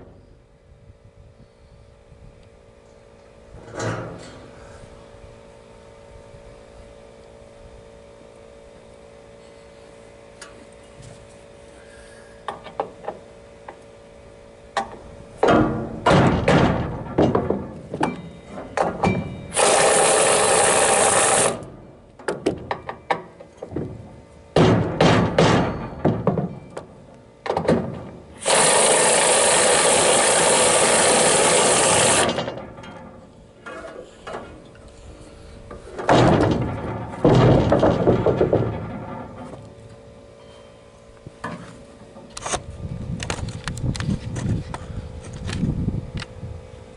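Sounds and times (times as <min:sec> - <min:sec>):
thunks and knocks on wood: 0:15.4 - 0:19.2, 0:23.6 - 0:26.9, 0:36.0 - 0:39.1
tool mechanical rasping: 0:19.5 - 0:21.6, 0:28.4 - 0:32.4
heavy knock: 0:24.6 - 0:26.6.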